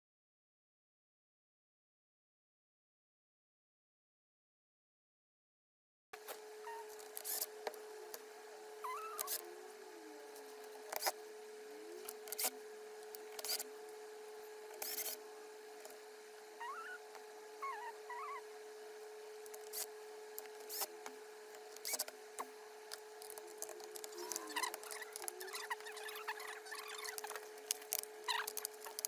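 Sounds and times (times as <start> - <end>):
electrical hum: 6.2 - 29.0.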